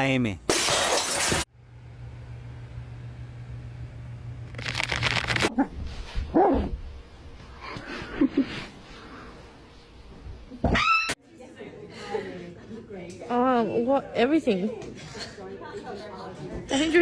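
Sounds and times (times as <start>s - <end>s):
low hum: 1.5s - 5.9s.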